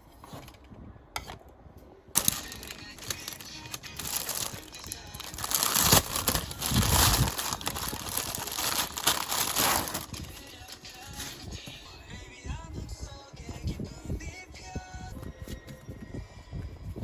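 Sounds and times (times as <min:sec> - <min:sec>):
packaging crinkling: 0:02.2 - 0:11.6.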